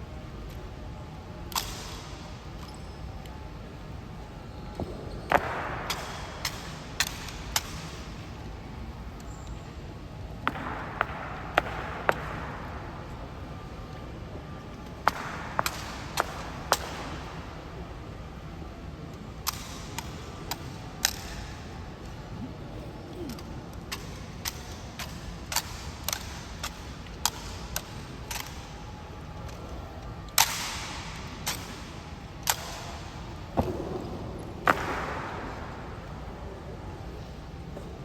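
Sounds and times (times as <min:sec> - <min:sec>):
loud crack with echo: 0:10.4 - 0:13.4, 0:30.4 - 0:36.9.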